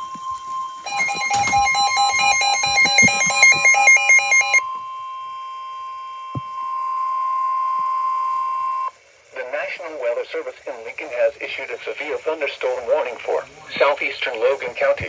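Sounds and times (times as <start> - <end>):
two-pitch alternating beeping tone: 0.9 - 4.6.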